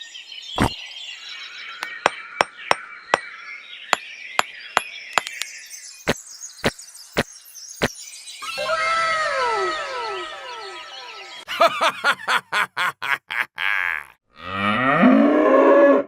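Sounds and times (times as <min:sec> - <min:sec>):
faint high chirping: 0:00.0 - 0:11.5.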